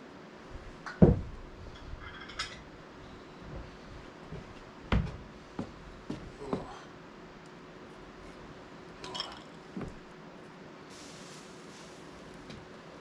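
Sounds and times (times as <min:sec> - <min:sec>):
dishes knocking on a table: 0:00.9 - 0:01.4.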